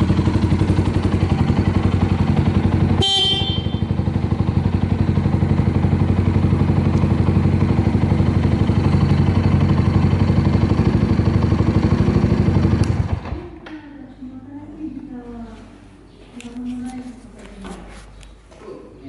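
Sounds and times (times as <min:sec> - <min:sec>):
motorcycle engine idling: 0:00.0 - 0:13.5
horn beep: 0:03.0 - 0:04.0.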